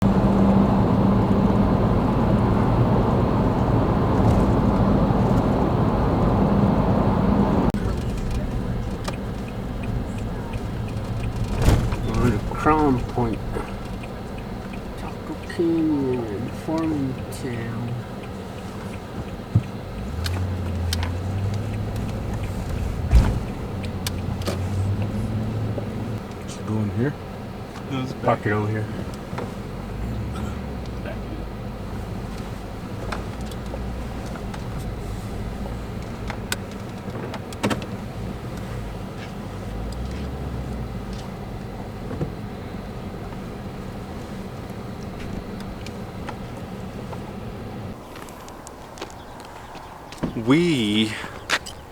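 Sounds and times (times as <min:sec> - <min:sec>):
constant hum: 0:00.0 - 0:51.9
vehicle engine and road drone: 0:00.0 - 0:51.9
thump: 0:11.4 - 0:12.5, 0:22.7 - 0:23.6.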